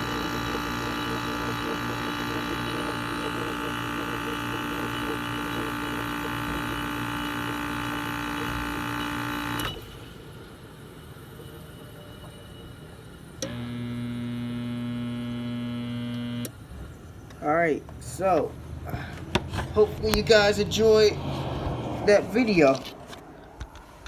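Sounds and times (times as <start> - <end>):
air conditioner droning: 0.0 - 12.0, 12.8 - 24.0.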